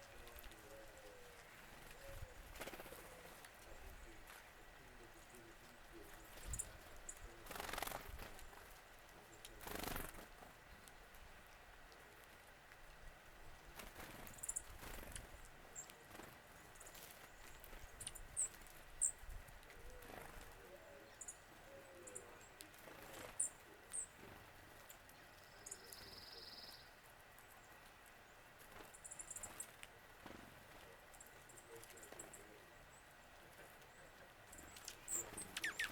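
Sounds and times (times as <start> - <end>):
buzzy bird trill: 34.5 - 35.9
high bird chip notes: 34.6 - 35.9.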